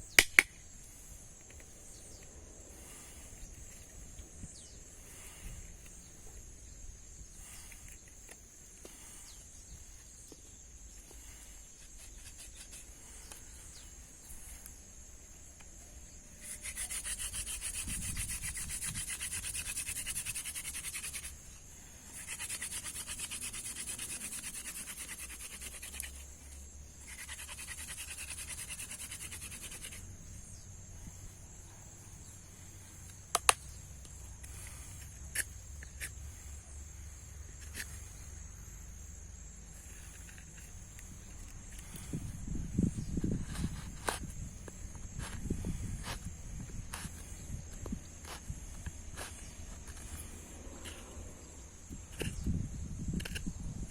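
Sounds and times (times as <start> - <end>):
sharp clicks: 0.1 - 0.6
rapid rubbing strokes: 11.2 - 13.8, 16.4 - 30.6.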